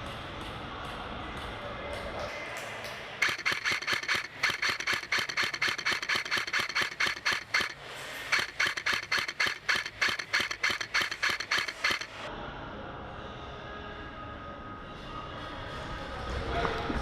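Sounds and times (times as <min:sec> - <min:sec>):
airsoft gun firing shots: 0:03.2 - 0:12.3.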